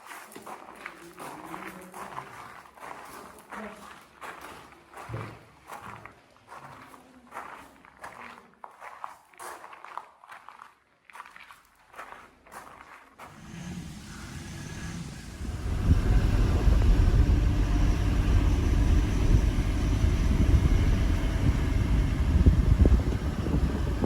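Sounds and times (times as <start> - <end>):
car road and engine rumble: 13.3 - 24.0.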